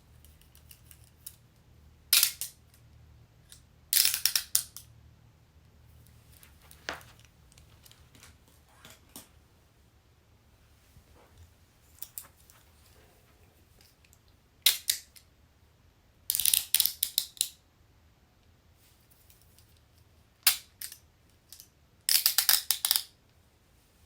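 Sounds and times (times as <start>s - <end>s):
handcuff clicks and ratcheting: 3.5s - 4.9s, 16.3s - 17.5s, 22.1s - 23.1s.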